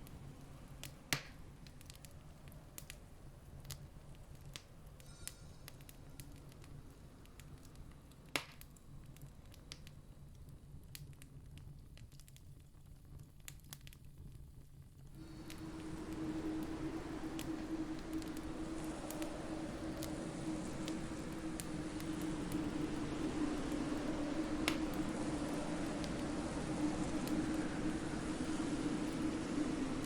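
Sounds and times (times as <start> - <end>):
campfire crackling and popping: 0.0 - 30.0
low steady rumble: 15.1 - 30.0.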